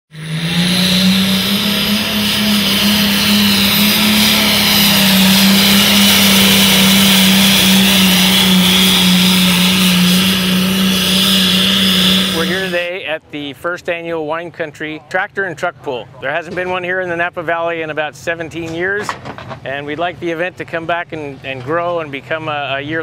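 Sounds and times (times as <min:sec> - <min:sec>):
tractor engine running loud: 0:00.1 - 0:12.9.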